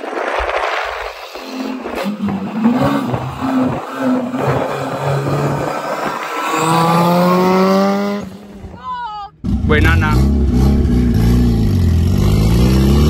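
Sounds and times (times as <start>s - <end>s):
car accelerating: 0.0s - 13.0s.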